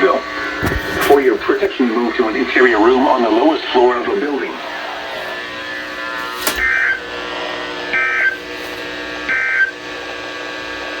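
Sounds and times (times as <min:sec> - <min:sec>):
radio receiver electronic hum: 0:00.0 - 0:11.0
sharp click: 0:06.3 - 0:07.0.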